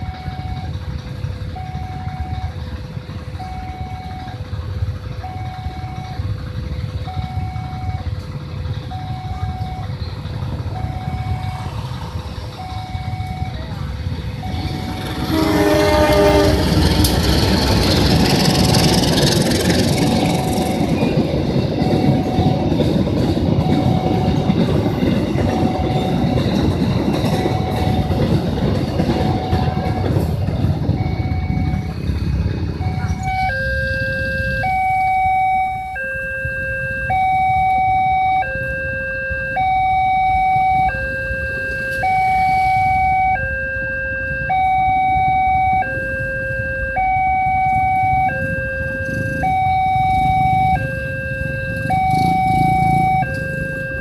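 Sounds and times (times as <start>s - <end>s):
level crossing alarm two-tone: 0.0s - 0.8s, 1.5s - 2.6s, 3.3s - 4.4s, 5.2s - 6.3s, 6.9s - 8.2s, 8.8s - 11.7s, 12.6s - 16.9s, 19.8s - 32.2s, 32.8s - 54.0s
train wheels on rails: 0.0s - 36.0s, 47.0s - 54.0s
train horn: 14.6s - 17.8s.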